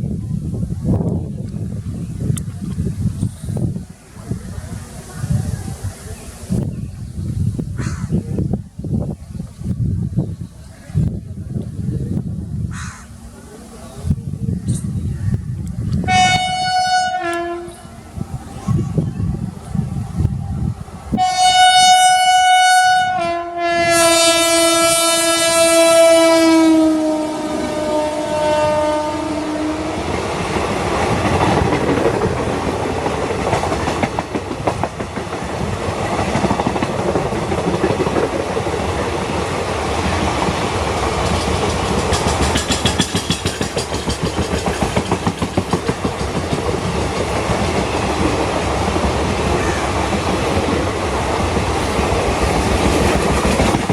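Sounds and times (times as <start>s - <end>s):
train coaches rumbling and clacking: 0.0s - 53.9s
train horn blasts: 16.0s - 18.1s, 21.1s - 30.3s.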